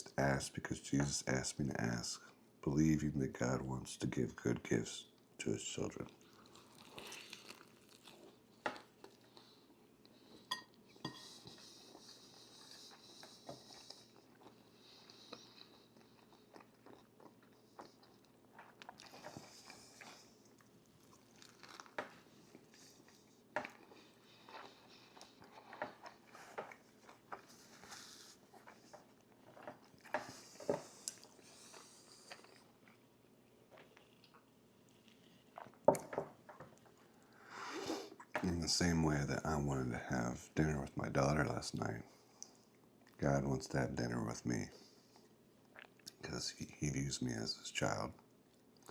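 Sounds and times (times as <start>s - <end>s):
chewing and crunching food: 5.1s - 37.5s, 44.7s - 46.2s, 48.2s - 48.9s.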